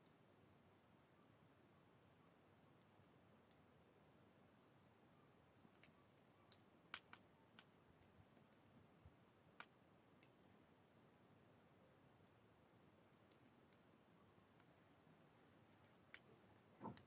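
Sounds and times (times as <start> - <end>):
wood fire faint pops: 16.1 - 17.0.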